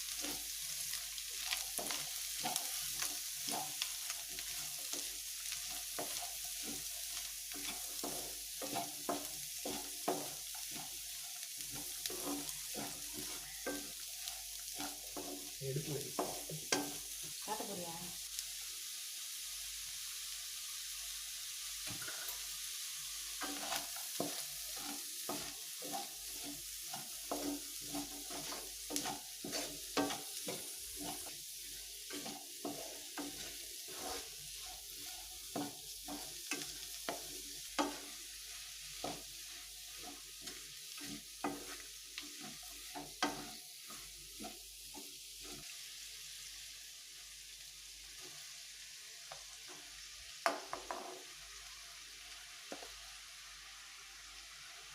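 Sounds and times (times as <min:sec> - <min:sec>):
spatula scraping a pan: 0:00.0 - 0:17.3, 0:21.9 - 0:22.5, 0:23.3 - 0:45.8
food sizzling in a hot pan: 0:00.0 - 0:54.9.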